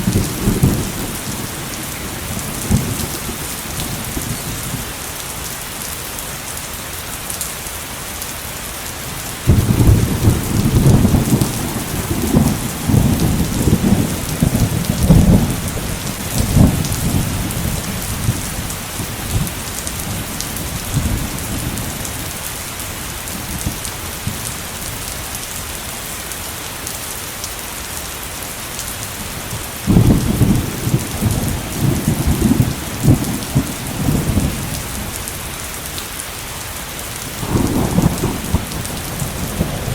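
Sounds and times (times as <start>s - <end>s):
thunder rolling: 0.0s - 4.5s, 9.5s - 22.3s, 29.9s - 35.2s, 37.4s - 39.9s
heavy rain: 0.0s - 39.9s.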